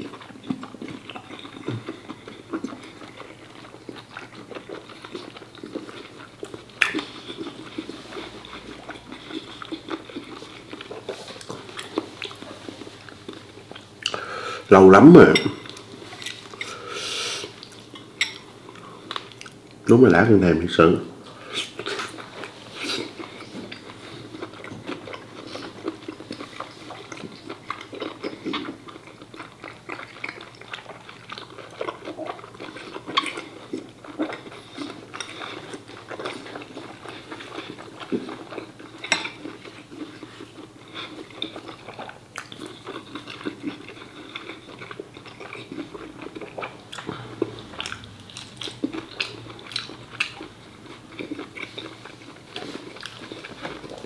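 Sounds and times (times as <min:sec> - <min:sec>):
wet chewing and biting: 0:21.6 - 0:54.0.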